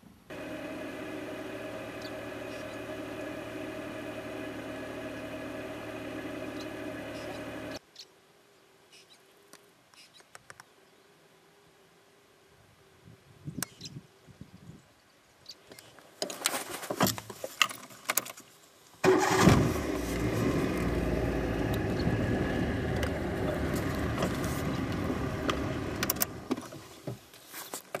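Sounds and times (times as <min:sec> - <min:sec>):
engine starting and running: 0:00.3 - 0:07.8, 0:19.0 - 0:26.8.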